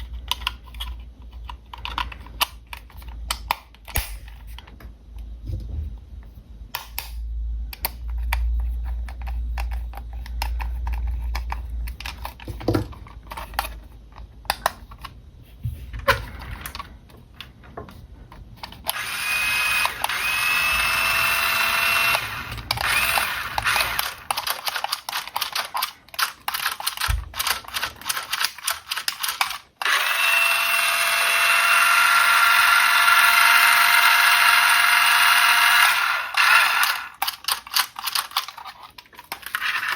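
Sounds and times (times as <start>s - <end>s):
small electric motor whirring: 18.8s - 25.7s, 27.3s - 37.7s, 39.4s - 39.9s
plastic clicks and rustles: 22.6s - 29.9s, 36.6s - 39.9s.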